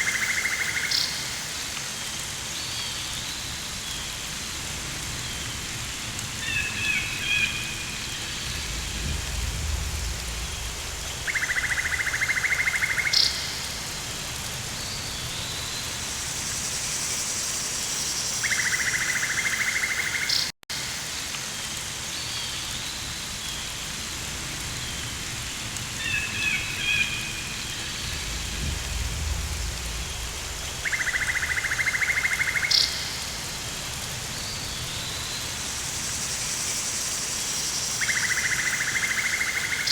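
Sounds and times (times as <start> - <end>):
rain hissing: 0.0 - 20.1, 20.8 - 39.9
low rumbles: 7.6 - 12.9, 27.1 - 31.8.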